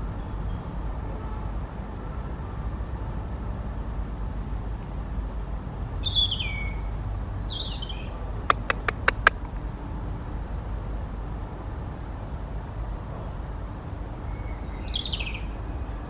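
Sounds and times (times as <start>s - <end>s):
sharp clicks: 8.5s - 9.6s.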